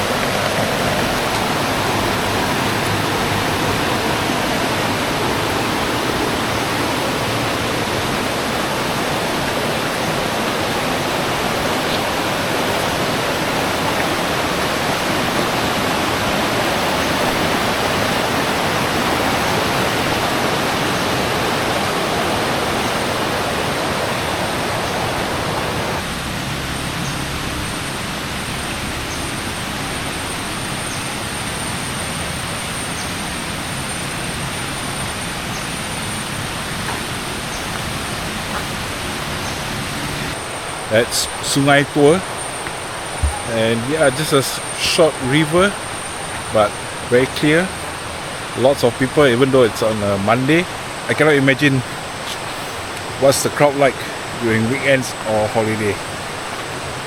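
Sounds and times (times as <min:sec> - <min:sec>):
rushing river water: 0:00.0 - 0:57.0.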